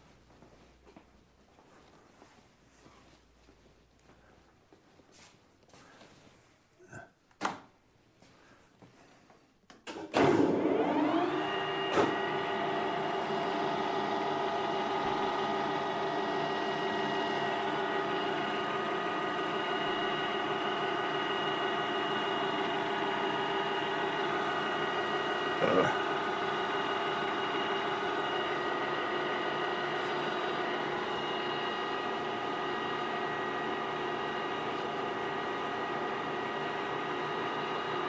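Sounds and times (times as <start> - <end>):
lathe motor humming: 10.3 - 38.0.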